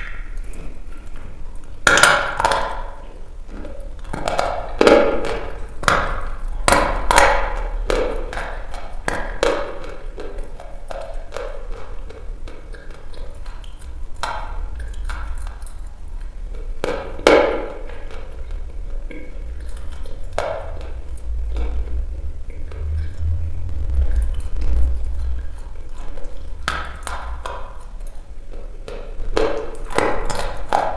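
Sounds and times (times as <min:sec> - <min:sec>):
steady low hum: 0:02.9 - 0:30.9
chalk being chewed: 0:09.8 - 0:16.8.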